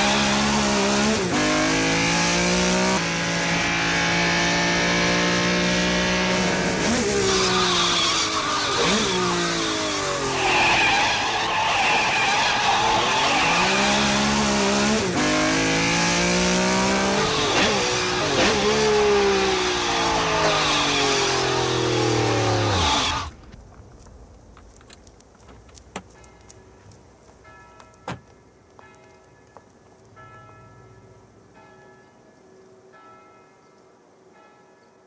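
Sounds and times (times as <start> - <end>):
car engine revving: 0.0 - 23.4
tyres squealing: 7.1 - 14.4.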